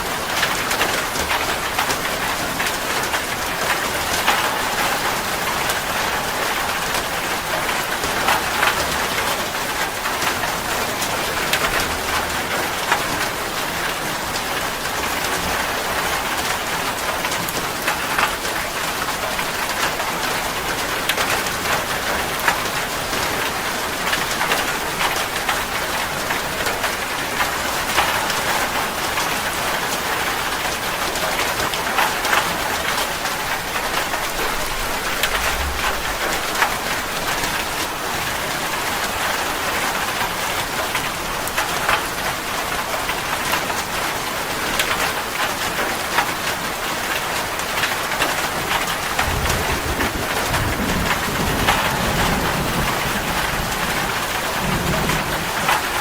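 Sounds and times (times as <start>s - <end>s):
steady rain falling: 0.0s - 56.0s
thunder rumble: 34.0s - 37.9s, 49.0s - 56.0s.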